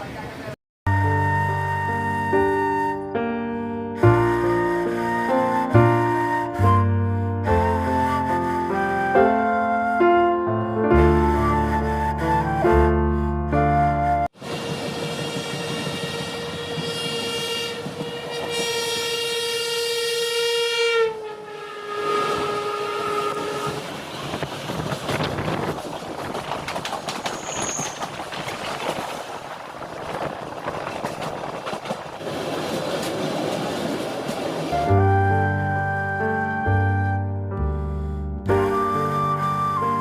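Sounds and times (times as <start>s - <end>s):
train horn: 14.4s - 23.8s
train rumbling along track: 14.4s - 35.2s
wheels clacking over rail joints: 23.1s - 34.8s.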